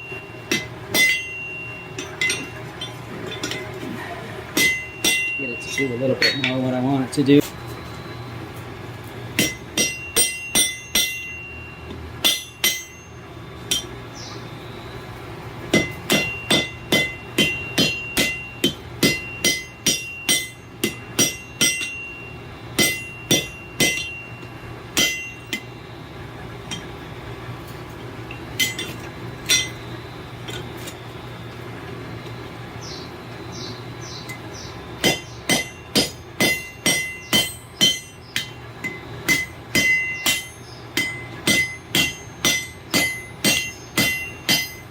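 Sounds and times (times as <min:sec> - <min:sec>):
hammer ringing on anvil: 0:00.0 - 0:03.7, 0:04.5 - 0:07.1, 0:09.4 - 0:14.3, 0:15.7 - 0:25.8, 0:26.7 - 0:27.0, 0:28.6 - 0:29.9, 0:34.0 - 0:44.9
steady low hum: 0:00.0 - 0:44.9.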